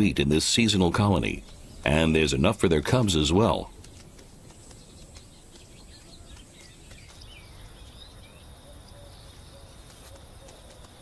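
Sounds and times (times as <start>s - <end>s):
outdoor background hiss: 0.0s - 11.0s
faint bird chirps: 0.6s - 11.0s.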